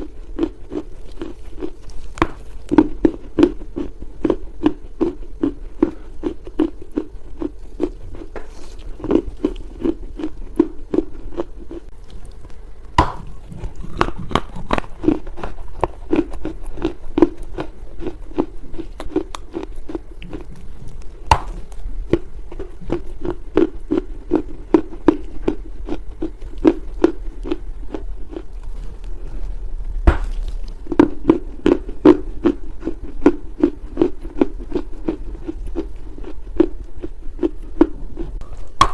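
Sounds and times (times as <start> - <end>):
chewing with soft crunches: 0.0 - 38.9
sharp cracking bites: 12.9 - 21.8.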